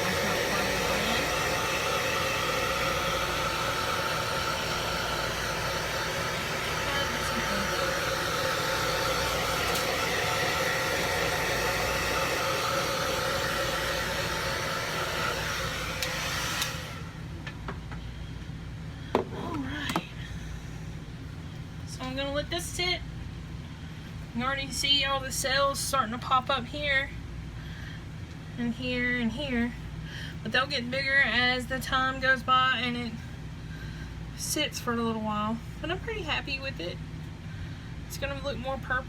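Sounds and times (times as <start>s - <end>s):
hair dryer blowing: 0.0s - 17.4s.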